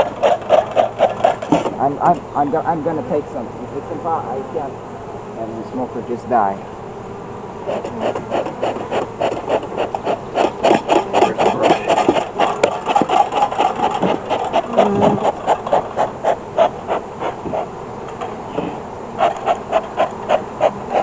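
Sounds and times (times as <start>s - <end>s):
smoker bellows squeaky puffs: 0.0s - 2.4s, 7.6s - 21.0s.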